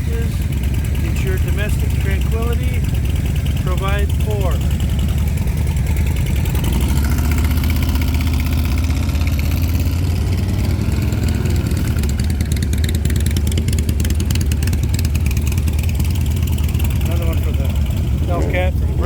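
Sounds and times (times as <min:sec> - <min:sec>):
car engine at high revs: 0:00.0 - 0:19.0.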